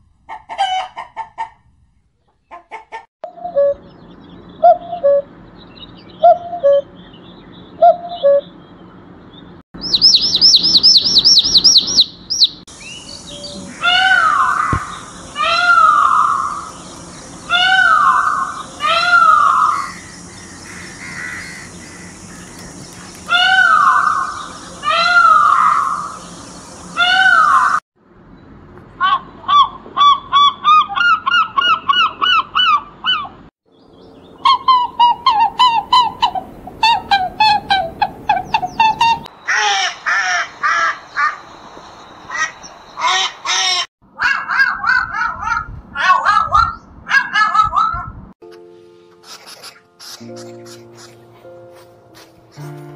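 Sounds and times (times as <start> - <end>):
peacock calls: 4.6 - 5.3, 13.2 - 27.8, 29.0 - 33.4, 34.4 - 41.6, 42.2 - 47.9, 49.2 - 51.3
rapid bird chattering: 9.8 - 12.6, 13.5 - 27.8, 49.2 - 51.3.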